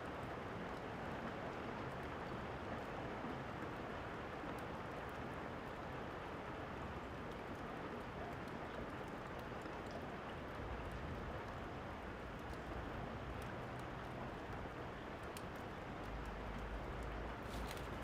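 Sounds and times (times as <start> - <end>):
steady rain: 0.0 - 18.0
wood fire crackles: 14.8 - 18.0.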